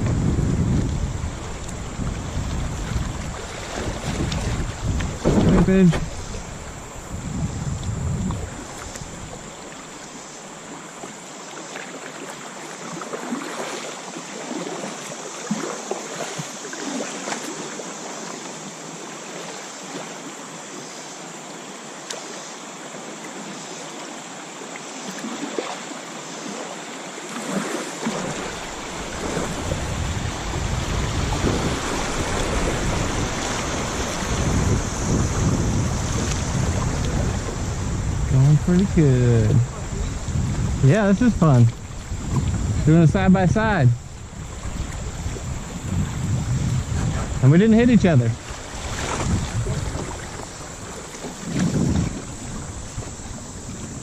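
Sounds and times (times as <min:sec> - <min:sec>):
wind rumble on microphone: 0:00.0 - 0:09.6, 0:28.2 - 0:54.0
river water rushing: 0:00.0 - 0:54.0.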